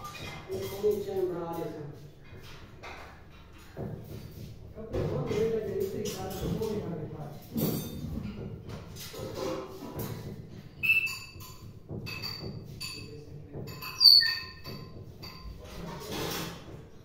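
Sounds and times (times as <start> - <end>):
parrot calling and chirping: 10.8 - 11.4, 13.9 - 14.7.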